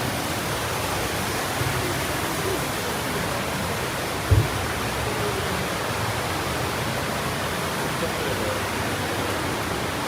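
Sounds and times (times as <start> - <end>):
waterfall rushing: 0.0 - 10.0
low thump: 4.3 - 4.6.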